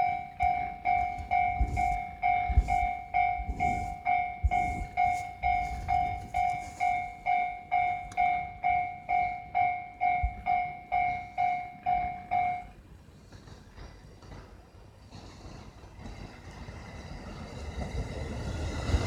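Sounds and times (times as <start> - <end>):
railway warning bell ringing: 0.0 - 13.0
passing train rumble: 0.0 - 19.0.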